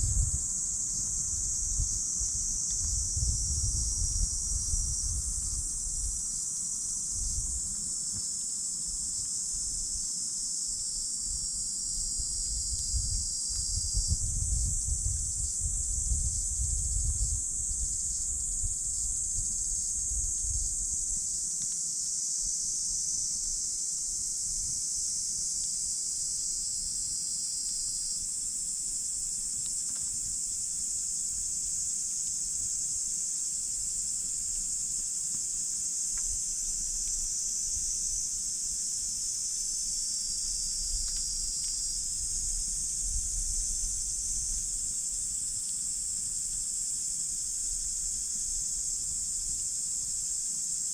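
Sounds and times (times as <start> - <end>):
high-pitched insect chorus: 0.0 - 50.9
campfire crackles: 28.4 - 37.5.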